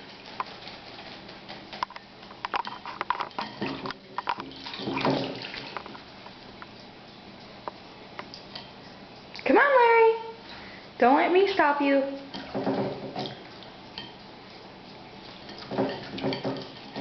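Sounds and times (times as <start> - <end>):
bird splashing in water: 3.4 - 6.0.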